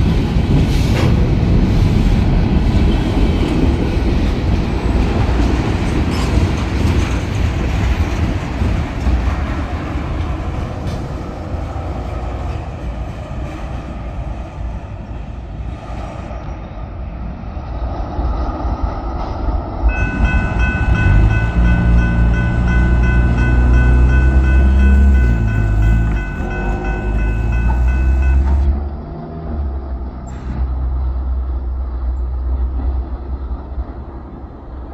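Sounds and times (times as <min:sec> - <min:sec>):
freight train rumbling past: 0:00.0 - 0:34.9
steady high-pitched tones: 0:19.9 - 0:29.0.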